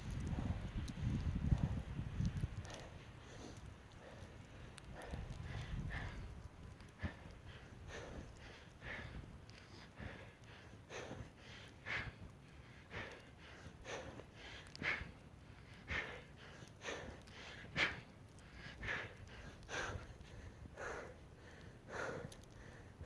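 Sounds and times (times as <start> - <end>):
person breathing hard: 0.0 - 23.0.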